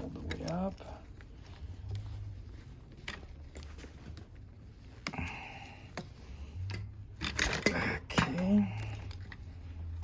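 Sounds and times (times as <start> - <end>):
vacuum hose parts clicking: 0.0 - 1.2, 5.9 - 10.0.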